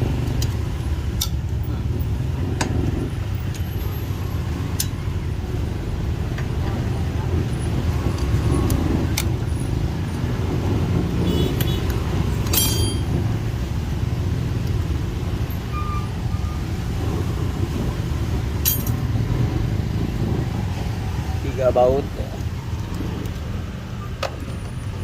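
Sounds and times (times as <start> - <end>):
metal tools clinking: 12.4 - 13.1, 18.6 - 19.1.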